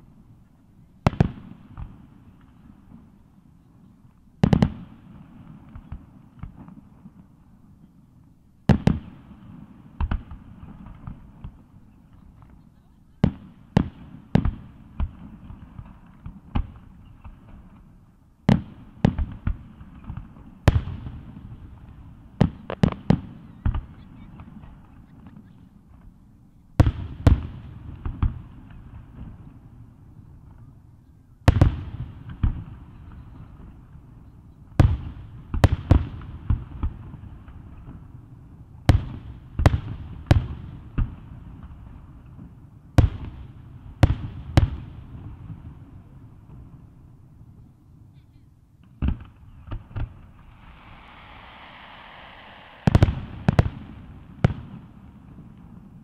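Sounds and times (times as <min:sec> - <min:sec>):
firework shells booming: 0:48.8 - 0:56.0.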